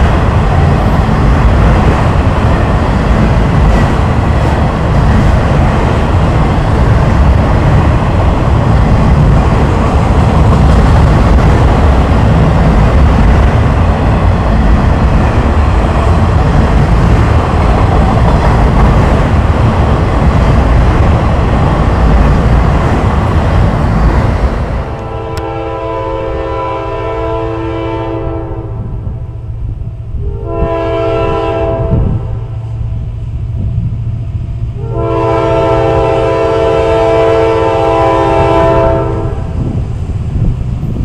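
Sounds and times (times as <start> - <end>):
steel wheels rattling on rails: 0.0 - 25.6
freight train rumbling past: 0.0 - 41.0.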